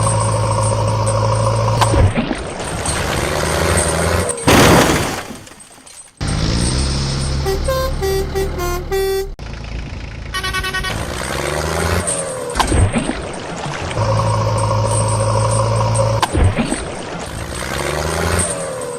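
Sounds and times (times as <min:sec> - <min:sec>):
miniature vehicle engine running: 0:06.2 - 0:12.6
horn toots: 0:06.6 - 0:09.4, 0:10.3 - 0:11.7.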